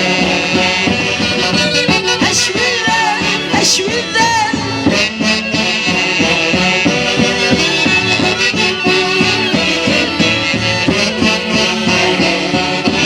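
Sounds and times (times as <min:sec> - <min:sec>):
wind instruments playing melody: 0:00.0 - 0:13.0.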